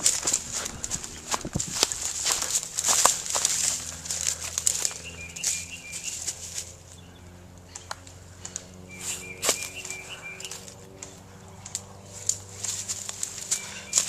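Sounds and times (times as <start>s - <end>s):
footsteps rustling dry leaves: 0.0s - 7.0s, 8.2s - 14.0s
bird calling high notes: 4.6s - 7.8s, 8.8s - 11.4s, 13.4s - 14.0s.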